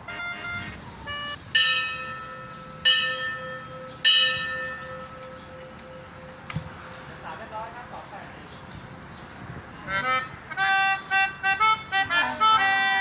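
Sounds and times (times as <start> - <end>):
high chime-like notes: 1.5 - 6.5
bell ringing: 1.6 - 6.5.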